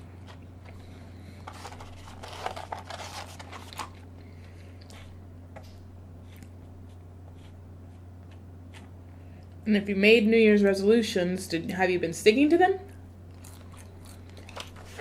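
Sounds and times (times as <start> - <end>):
low electrical hum: 0.0 - 15.0
food and paper packaging crunching: 0.2 - 4.1, 13.3 - 15.0.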